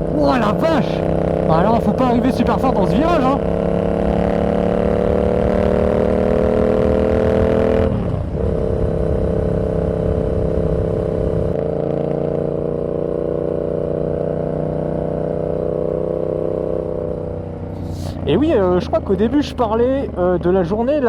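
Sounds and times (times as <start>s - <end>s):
motorcycle engine while riding: 0.0s - 21.0s.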